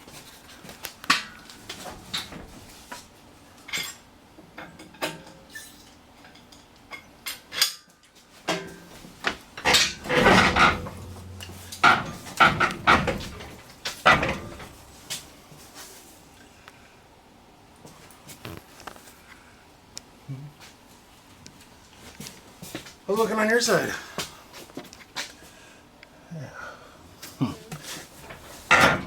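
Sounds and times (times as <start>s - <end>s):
metal tools clanking: 8.5s - 15.2s, 28.2s - 29.0s.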